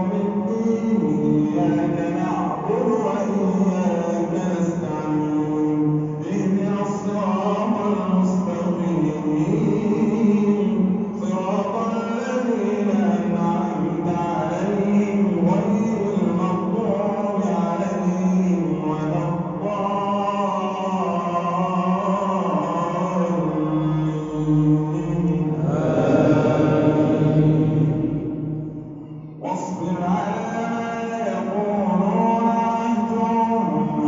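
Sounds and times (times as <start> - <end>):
man chanting melodically: 0.0 - 34.0.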